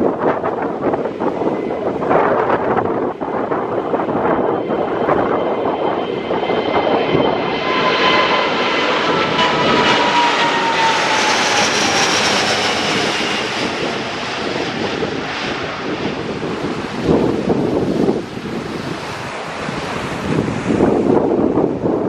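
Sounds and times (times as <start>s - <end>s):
jet airliner passing: 0.0s - 22.0s.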